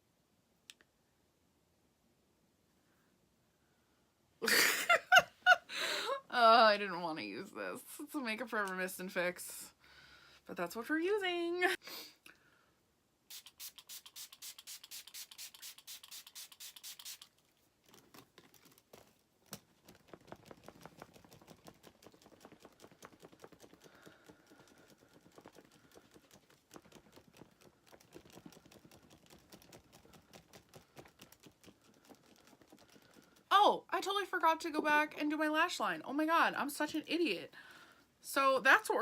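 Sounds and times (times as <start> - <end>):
spray bottle spritzing: 13.3 - 17.4
faint clicks and rubbing of handling: 17.2 - 33.5.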